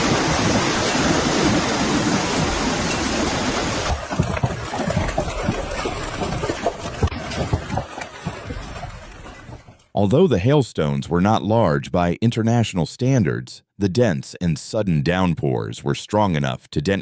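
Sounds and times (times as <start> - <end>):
heavy rain and hail: 0.0 - 9.6.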